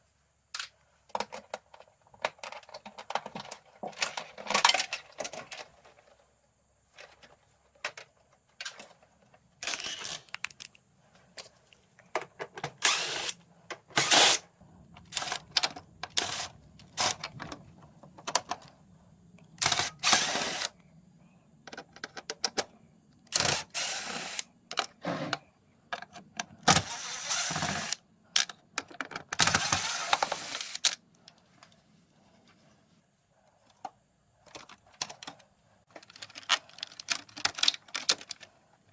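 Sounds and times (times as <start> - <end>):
tools and screws clicking and clinking: 9.6 - 10.8, 11.4 - 14.4, 25.9 - 31.0, 34.4 - 38.5.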